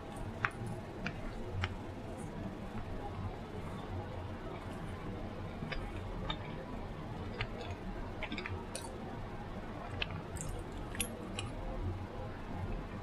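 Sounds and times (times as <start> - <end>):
low background hum: 0.0 - 13.0
chewing with wet mouth smacks: 7.2 - 9.0.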